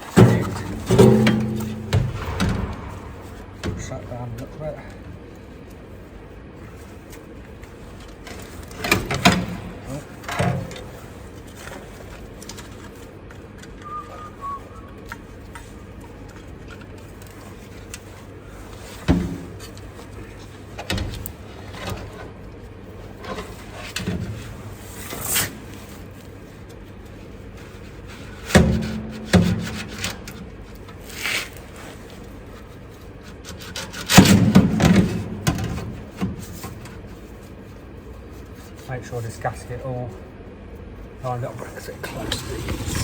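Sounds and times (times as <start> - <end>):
metal exhaust parts clanking: 0.0 - 5.1.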